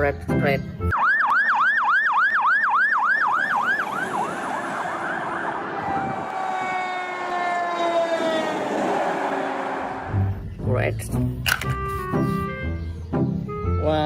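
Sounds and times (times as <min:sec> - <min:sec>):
emergency siren yelping: 0:00.9 - 0:10.4.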